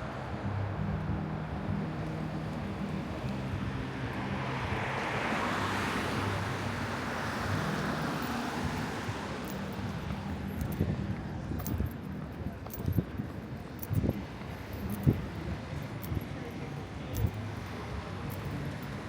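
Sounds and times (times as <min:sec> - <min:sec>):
low engine hum: 0:00.0 - 0:19.0
car passing: 0:01.7 - 0:10.6.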